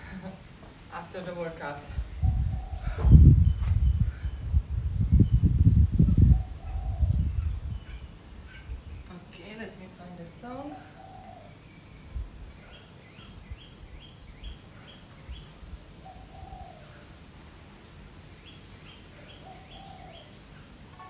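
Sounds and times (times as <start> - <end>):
soft low thumps: 2.1 - 6.4
bird chirping: 11.0 - 16.9, 18.4 - 20.4.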